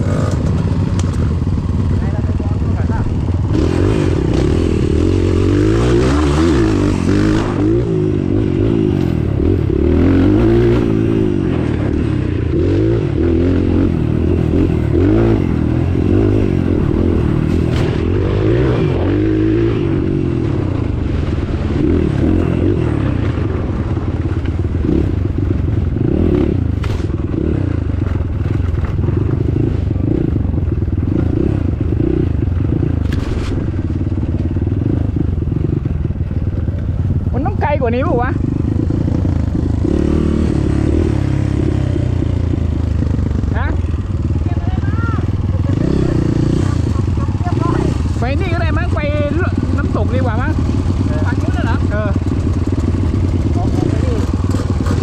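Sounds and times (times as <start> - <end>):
motorcycle rattles and knocks: 0.0 - 5.2, 19.8 - 55.0
motorcycle engine revving: 0.0 - 55.0.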